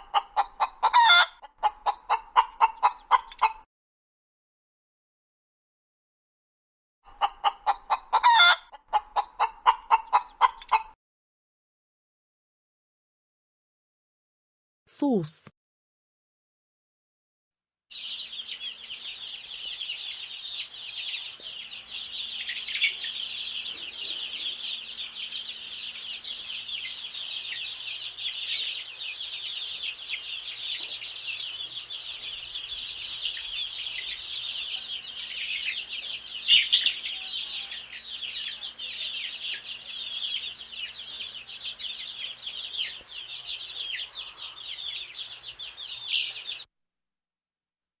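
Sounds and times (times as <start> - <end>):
baby chicks peeping: 0.0 - 3.6, 7.1 - 11.0, 17.9 - 46.7.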